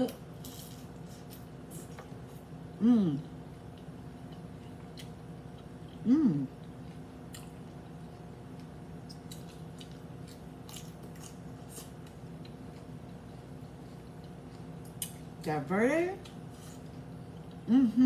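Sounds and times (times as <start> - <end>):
chewing crunchy taco shell: 0.2 - 15.4, 16.2 - 17.7
person humming in enjoyment: 2.8 - 3.2, 6.0 - 6.5, 17.7 - 18.0.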